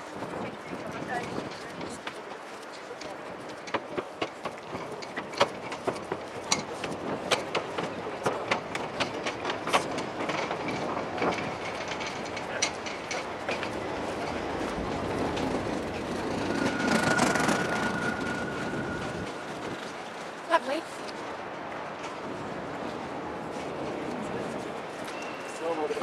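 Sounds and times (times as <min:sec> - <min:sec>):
train rumble: 0:00.0 - 0:26.0
train wheels clicking on rails: 0:00.0 - 0:26.0
thin steady squeal: 0:15.7 - 0:20.4.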